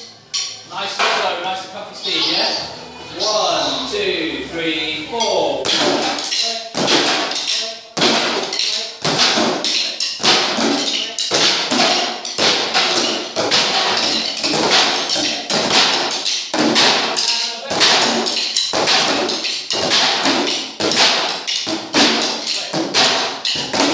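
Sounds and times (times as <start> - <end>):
group drumming steady rhythm: 5.0 - 23.9.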